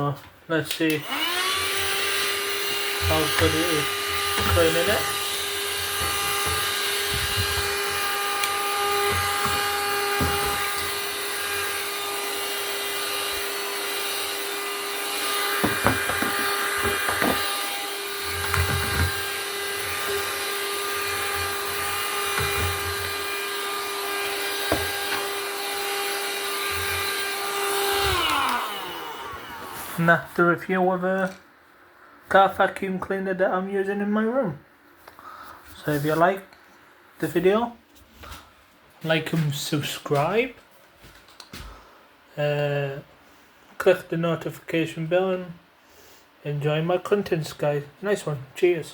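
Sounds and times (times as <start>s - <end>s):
car vacuum cleaner whining: 0.9s - 30.0s.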